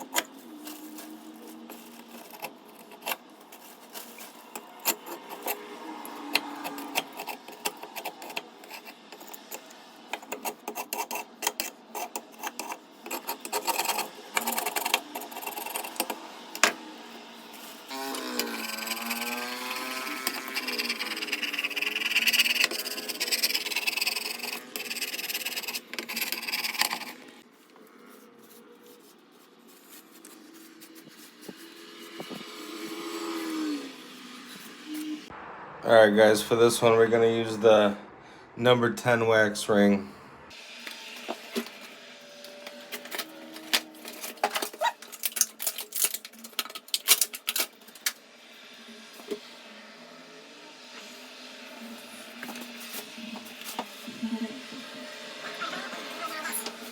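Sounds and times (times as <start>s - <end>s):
plastic packaging crackling: 0.0s - 7.7s, 42.6s - 48.2s
wax scraping off toilet flange: 0.0s - 33.6s, 51.8s - 56.9s.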